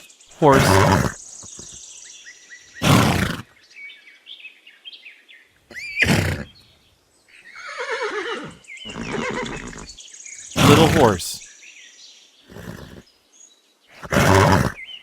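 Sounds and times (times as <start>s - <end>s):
horse whinnying: 0.4s - 1.8s, 2.8s - 3.4s, 5.7s - 6.6s, 7.6s - 10.0s, 10.6s - 11.4s, 12.5s - 13.0s, 14.0s - 14.8s.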